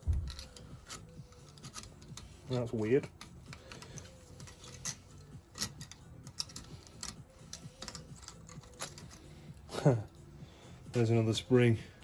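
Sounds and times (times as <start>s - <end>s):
small metal parts clicking: 0.0s - 9.4s.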